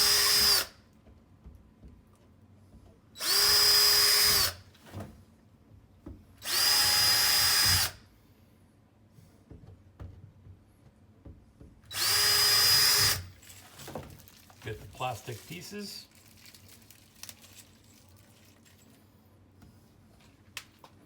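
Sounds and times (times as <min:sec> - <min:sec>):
power drill drilling: 0:00.0 - 0:00.7, 0:03.2 - 0:04.6, 0:06.4 - 0:08.0, 0:11.9 - 0:13.3.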